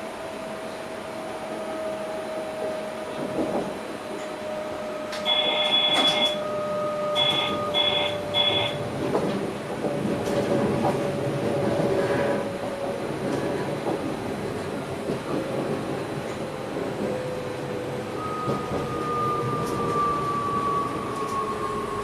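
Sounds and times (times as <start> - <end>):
train motor whine: 4.1 - 8.8
electronic cab signal beeps: 5.2 - 6.4, 7.2 - 8.8
wheels clattering on track: 7.2 - 12.3.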